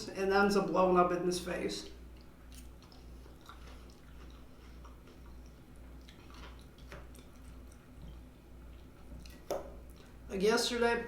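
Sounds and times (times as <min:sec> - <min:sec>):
person chewing food: 0:02.1 - 0:10.2.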